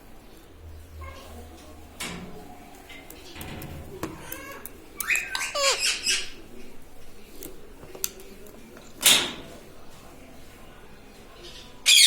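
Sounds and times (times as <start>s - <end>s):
parrot squawking: 4.4s - 6.4s.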